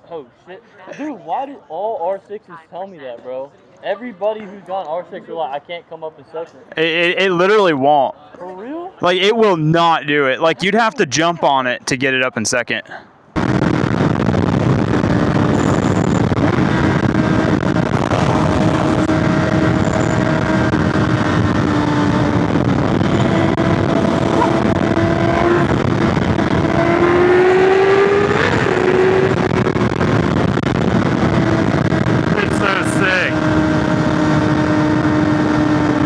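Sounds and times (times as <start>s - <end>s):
motorcycle engine running: 13.4s - 36.0s
wind rushing over microphone: 13.4s - 36.0s.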